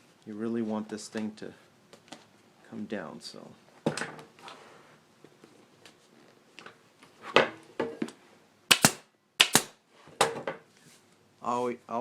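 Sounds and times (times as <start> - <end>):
staple gun firing: 8.7 - 9.7.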